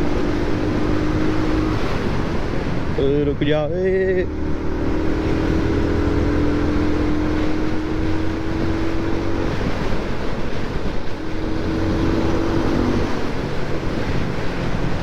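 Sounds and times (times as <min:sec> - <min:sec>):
wind rush on microphone: 0:00.0 - 0:15.0
motorcycle engine running: 0:03.7 - 0:15.0.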